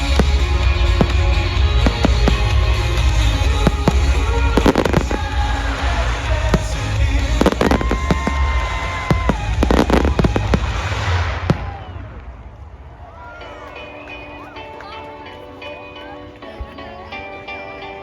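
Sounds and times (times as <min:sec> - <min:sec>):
music playing: 0:00.0 - 0:11.6, 0:13.2 - 0:18.0
fireworks bangs and crackles: 0:00.0 - 0:14.2.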